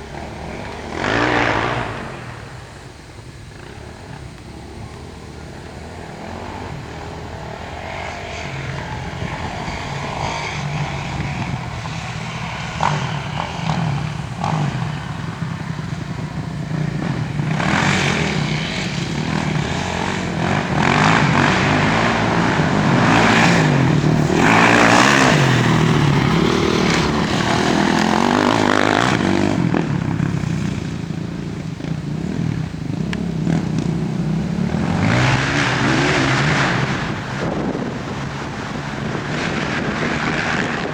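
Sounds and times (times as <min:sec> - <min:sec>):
rushing noise bursts: 0:00.0 - 0:31.9
dirt bike engine running: 0:00.0 - 0:40.9.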